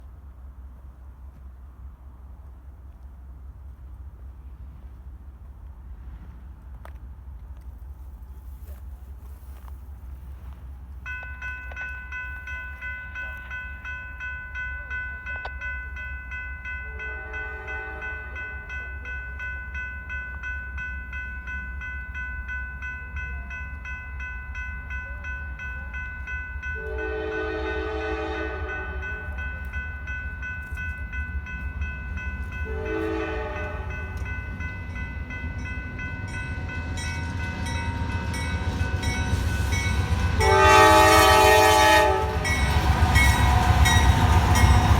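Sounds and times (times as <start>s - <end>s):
train low rumble: 0.0s - 44.9s
electronic crossing bell ringing: 11.1s - 44.9s
train horn blasts: 16.9s - 18.5s, 26.8s - 29.3s, 32.6s - 34.4s, 36.2s - 44.9s.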